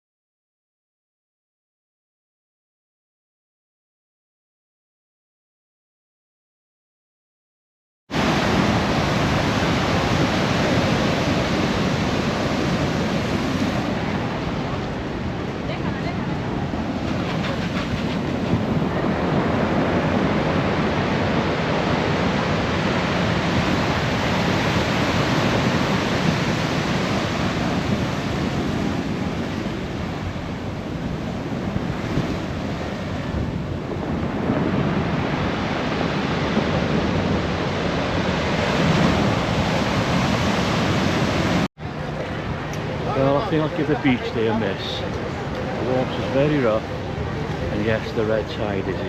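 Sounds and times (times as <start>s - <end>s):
ocean surf breaking: 8.1s - 49.0s
wind buffeting microphone: 8.2s - 44.1s.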